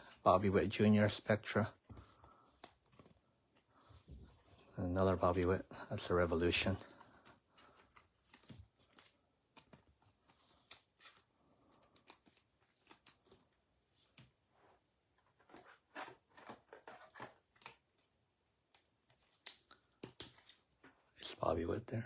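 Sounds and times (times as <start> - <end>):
trading cards tapping and rustling: 1.8 - 4.4, 6.7 - 13.5, 15.2 - 18.1, 18.8 - 21.0.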